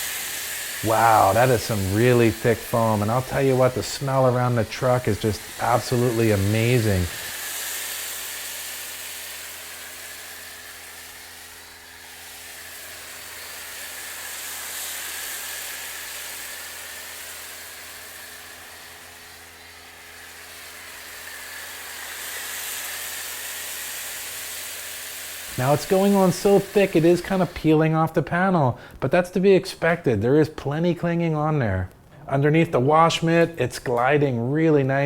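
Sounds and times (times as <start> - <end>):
hiss of foam spray: 0.0 - 27.8
pressure washer motor hum: 0.0 - 29.0.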